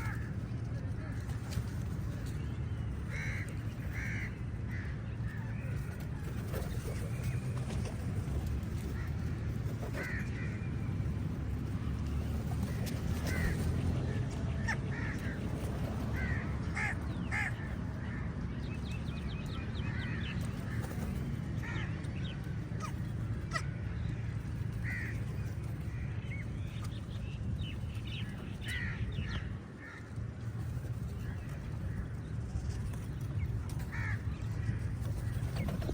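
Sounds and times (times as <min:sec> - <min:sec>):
steady low rumble: 0:00.0 - 0:35.9
crows cawing: 0:03.1 - 0:05.0, 0:10.0 - 0:10.6, 0:14.6 - 0:15.4, 0:16.1 - 0:18.2, 0:24.8 - 0:25.2, 0:28.6 - 0:30.1, 0:33.9 - 0:34.8.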